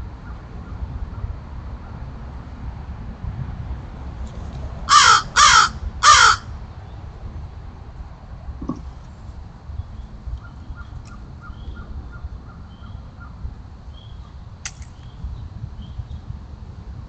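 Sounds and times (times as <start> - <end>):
wind on microphone: 0.0 - 17.0
crow cawing: 4.9 - 6.5
sharp click: 14.6 - 15.0.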